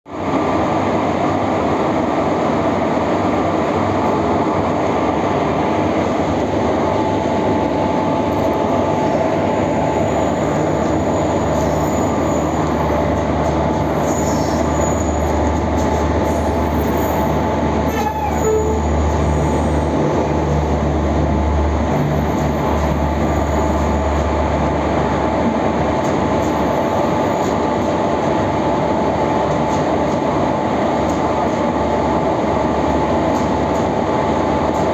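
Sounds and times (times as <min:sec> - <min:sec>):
train rumbling over rails: 0:00.1 - 0:34.9
wheel squeal: 0:13.8 - 0:20.0.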